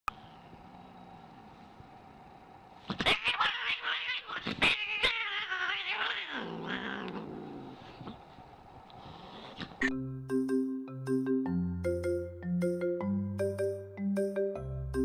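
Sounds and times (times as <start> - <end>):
cat yowling: 2.9 - 7.3.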